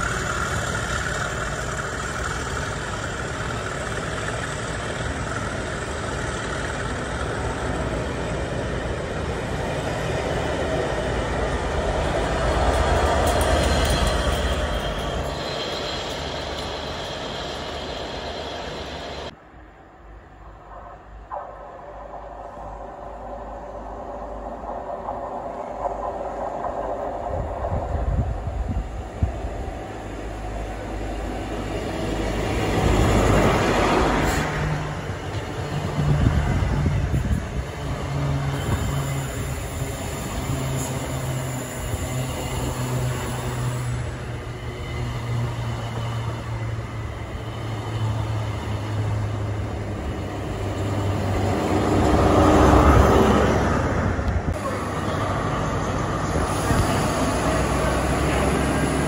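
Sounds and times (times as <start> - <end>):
low diesel engine hum: 0.0 - 19.4
train passing close by: 0.0 - 59.0.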